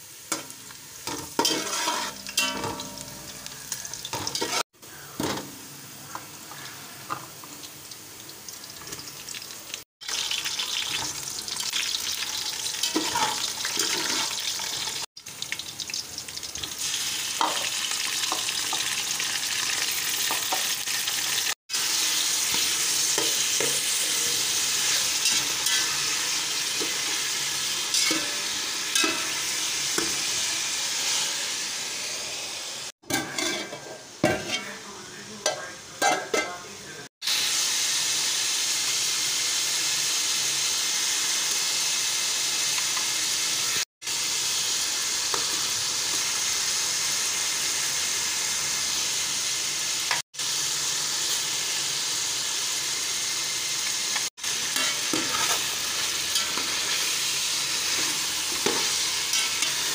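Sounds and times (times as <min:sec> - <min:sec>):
food sizzling in oil: 0:00.0 - 0:59.9
spatula scraping metal pot: 0:01.2 - 0:02.6, 0:33.1 - 0:34.8.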